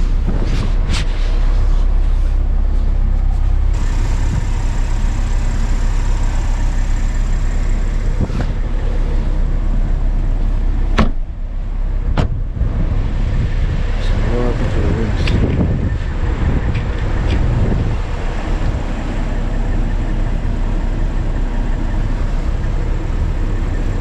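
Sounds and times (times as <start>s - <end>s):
car rumble: 0.0s - 24.0s
sharp knocks: 11.0s - 11.2s.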